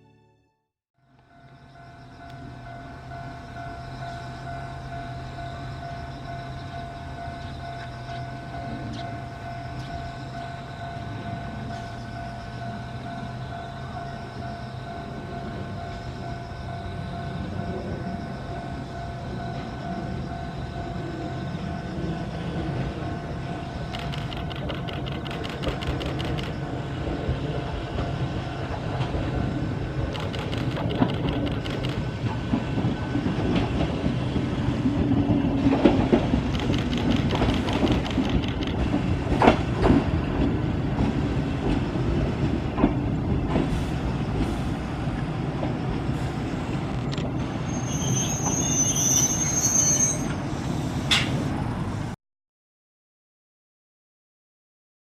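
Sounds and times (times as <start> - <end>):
electric train rumbling: 1.0 - 52.2
train wheels clicking: 22.6 - 47.6
high wheel squeal: 47.4 - 51.5.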